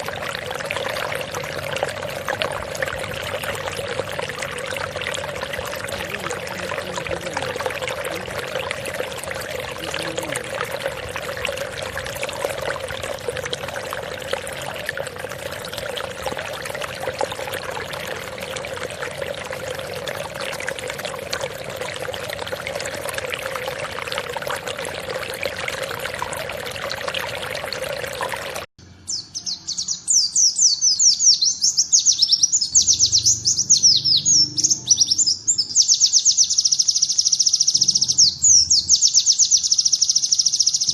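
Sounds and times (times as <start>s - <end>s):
running water pouring: 0.0s - 28.7s
songbird chirping: 28.8s - 40.9s.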